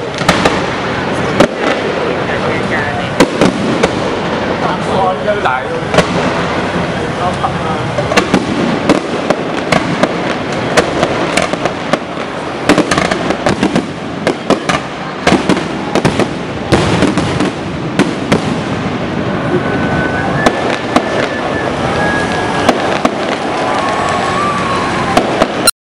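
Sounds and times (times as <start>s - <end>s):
continuous rumble: 0.0s - 25.7s
fireworks bursting: 0.0s - 25.7s
faint thin whistle: 19.9s - 22.5s.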